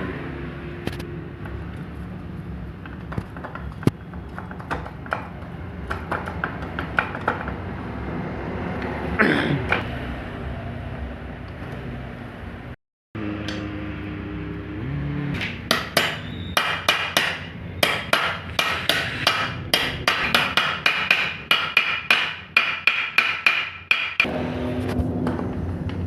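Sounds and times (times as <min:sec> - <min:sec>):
hammer striking metal: 0:15.4 - 0:24.3.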